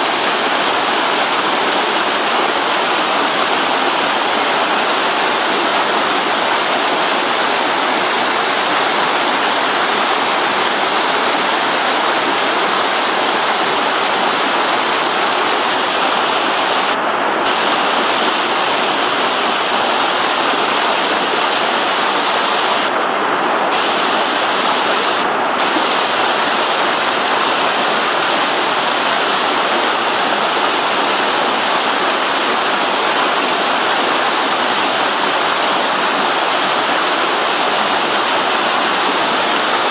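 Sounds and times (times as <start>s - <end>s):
rushing mountain stream: 0.0s - 39.9s.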